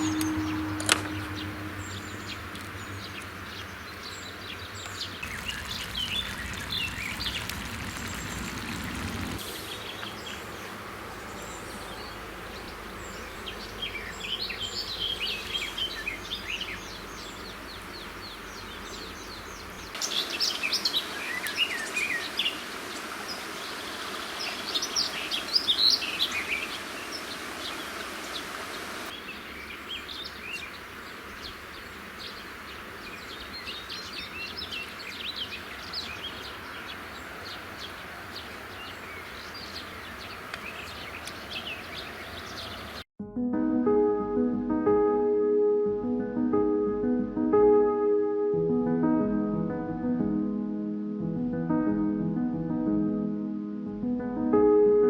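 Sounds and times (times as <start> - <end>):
songbirds singing and chirping: 0.0 - 43.1
steady outdoor hiss: 0.0 - 43.1.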